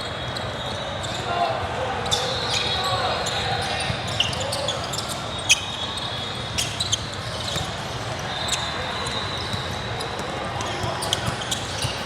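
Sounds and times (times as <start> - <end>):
shoe squeaks: 0.0 - 1.3, 2.0 - 12.0
murmur of gym: 0.0 - 12.0.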